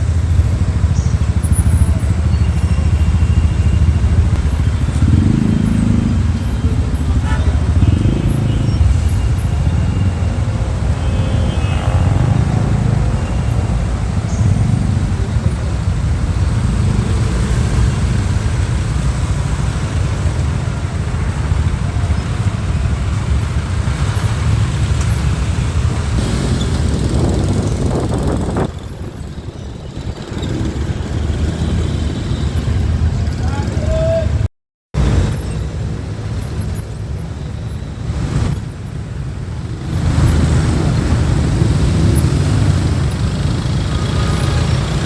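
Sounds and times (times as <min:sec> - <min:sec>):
motorcycle engine rumble: 0:00.0 - 0:34.4
road noise: 0:00.0 - 0:45.0.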